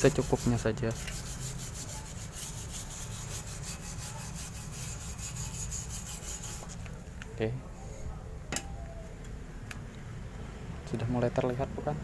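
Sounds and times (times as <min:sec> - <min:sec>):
wire brush scrubbing metal pipe: 0:00.0 - 0:07.1.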